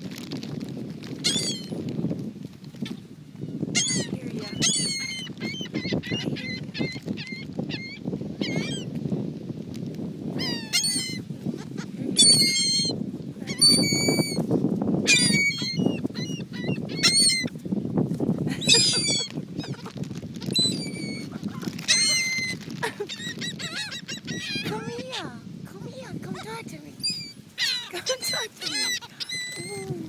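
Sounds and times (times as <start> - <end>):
seagulls calling: 1.2 - 1.7, 3.8 - 8.9, 10.4 - 14.4, 15.1 - 17.5, 18.6 - 25.2, 26.3 - 30.0.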